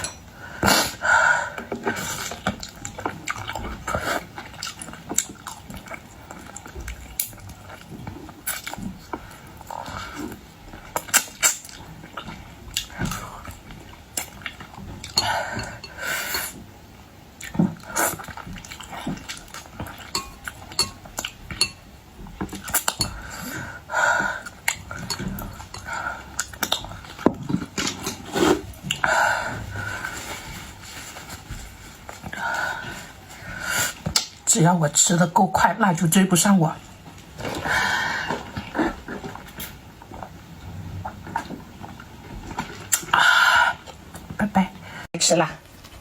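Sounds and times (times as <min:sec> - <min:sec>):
dishes clinking: 0:00.0 - 0:00.3, 0:14.3 - 0:16.6, 0:17.6 - 0:26.0.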